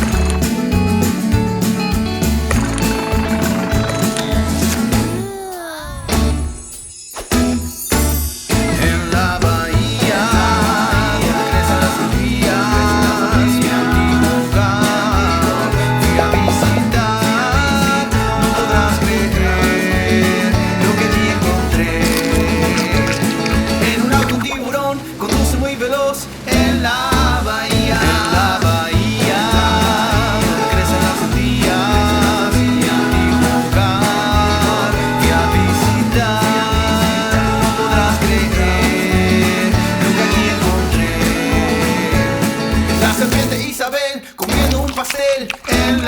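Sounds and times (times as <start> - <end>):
upbeat music with bass line: 0.0 - 5.3, 6.1 - 43.8, 44.4 - 46.0
country song with guitar: 0.0 - 46.0.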